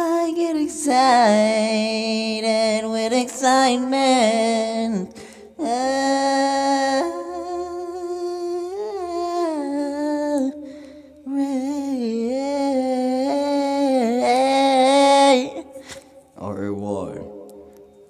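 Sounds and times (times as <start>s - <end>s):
person humming: 11.3s - 16.0s.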